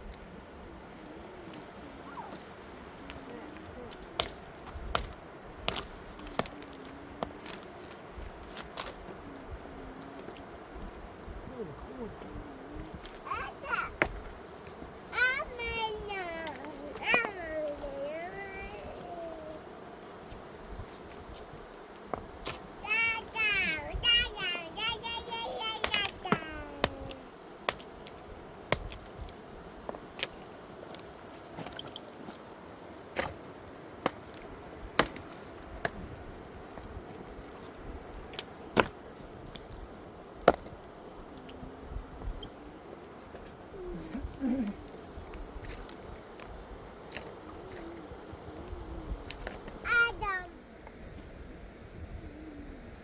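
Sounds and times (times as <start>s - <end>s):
person speaking: 15.1s - 19.6s, 22.8s - 27.3s.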